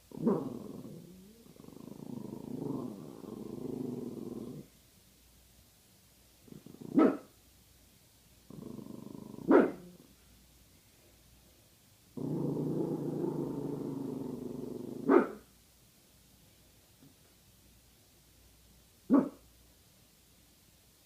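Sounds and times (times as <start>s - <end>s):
dog growling: 0.1s - 4.7s, 6.5s - 7.2s, 8.5s - 10.1s, 12.2s - 15.4s
dog barking sharply: 19.1s - 19.4s.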